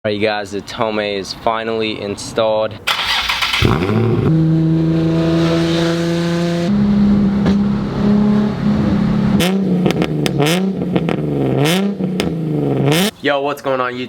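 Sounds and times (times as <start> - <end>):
engine revving with throttle blips: 2.9 - 13.1.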